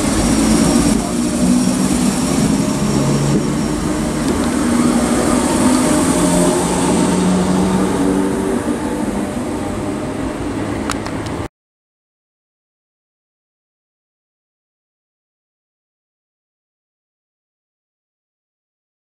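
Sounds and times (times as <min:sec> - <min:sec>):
train wheels rumbling on rail: 0:00.0 - 0:11.5.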